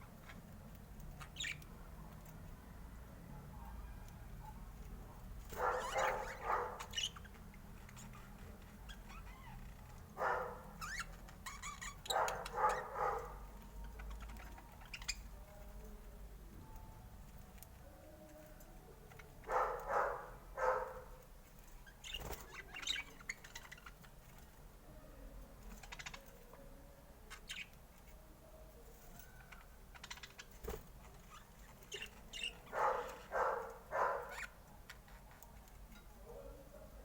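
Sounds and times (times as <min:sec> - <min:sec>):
budgerigar chirping: 0:05.6 - 0:07.3, 0:10.2 - 0:13.4, 0:31.9 - 0:34.6.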